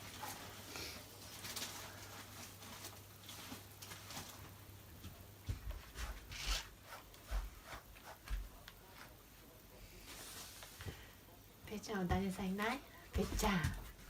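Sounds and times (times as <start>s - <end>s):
brush scratching dog's coat: 5.9s - 9.2s.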